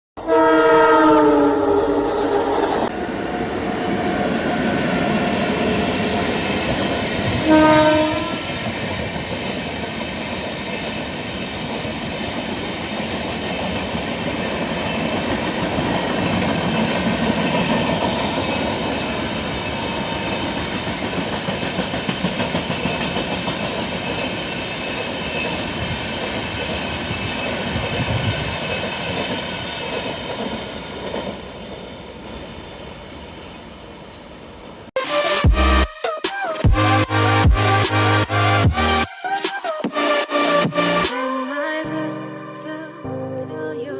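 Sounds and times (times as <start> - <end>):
train horn blast: 0.2 - 2.6, 7.3 - 8.7
rumble of train coaches: 0.2 - 34.9.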